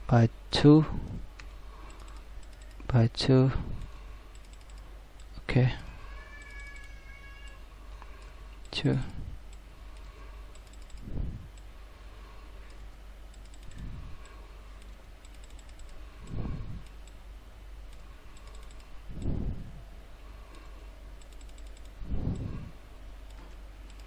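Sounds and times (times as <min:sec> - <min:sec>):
steady low hum: 0:00.0 - 0:24.0
keyboard typing: 0:01.4 - 0:02.9, 0:04.3 - 0:05.4, 0:09.9 - 0:11.7, 0:12.7 - 0:17.2, 0:17.9 - 0:19.4, 0:20.6 - 0:22.5, 0:23.3 - 0:24.0.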